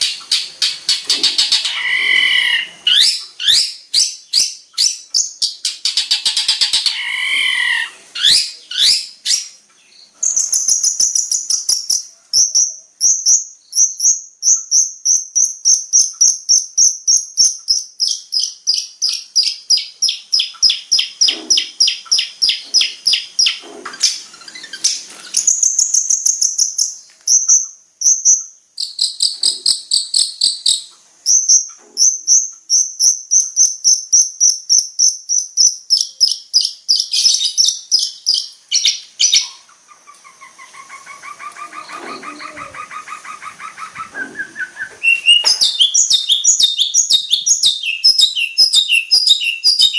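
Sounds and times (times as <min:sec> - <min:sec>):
bird harsh chattering: 0:00.0 - 0:09.6, 0:10.2 - 0:44.4, 0:45.0 - 0:49.9
bird chirping: 0:00.0 - 0:49.9
bird wavering whistle: 0:01.2 - 0:05.3, 0:40.8 - 0:49.9.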